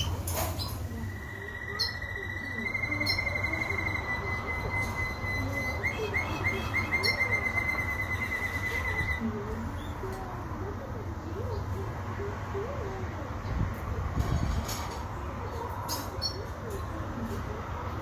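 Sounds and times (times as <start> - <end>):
canary trilling: 0.0 - 10.2, 15.5 - 16.9.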